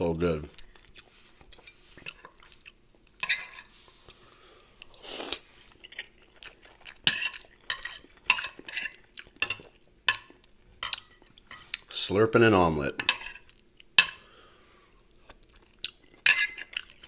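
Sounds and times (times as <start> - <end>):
cutlery scraping a plate: 1.4 - 2.4, 3.2 - 3.8, 7.0 - 11.7, 13.0 - 14.2, 16.2 - 17.0
cutlery clinking on a plate: 3.2 - 3.7, 7.1 - 11.7, 16.2 - 16.8.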